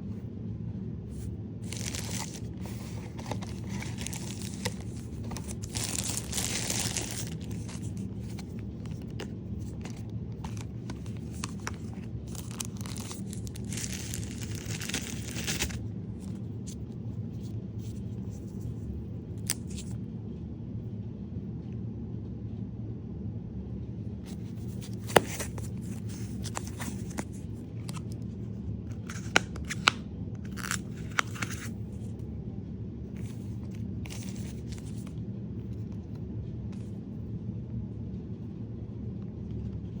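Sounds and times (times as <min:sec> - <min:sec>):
steady low hum: 0:00.0 - 0:40.0
packaging being torn and crinkled: 0:01.6 - 0:16.4, 0:19.4 - 0:19.9, 0:24.6 - 0:28.2, 0:28.9 - 0:32.0, 0:33.2 - 0:35.1.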